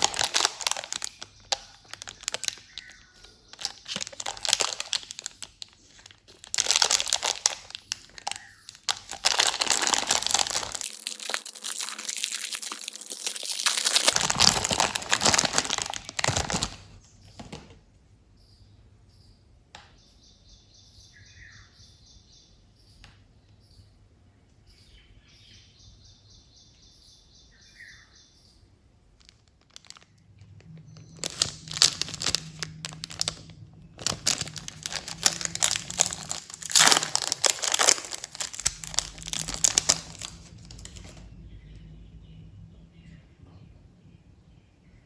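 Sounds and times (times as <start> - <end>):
plastic wrappers crinkling: 0.0 - 17.0, 29.2 - 41.3.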